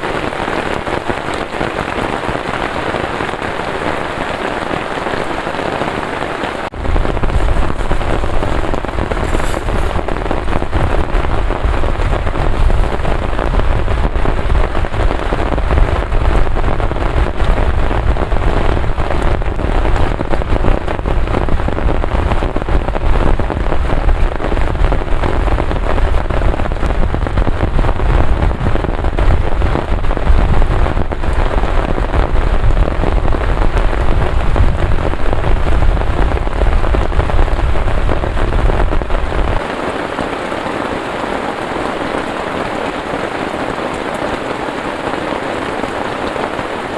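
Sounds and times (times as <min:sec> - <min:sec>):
heavy rain pouring: 0:00.0 - 0:46.9
deep low rumble: 0:06.8 - 0:23.9.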